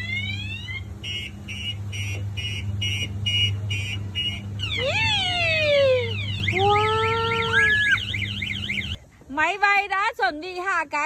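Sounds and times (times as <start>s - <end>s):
warbling siren-like sweeps: 0.0s - 0.9s, 4.6s - 9.0s.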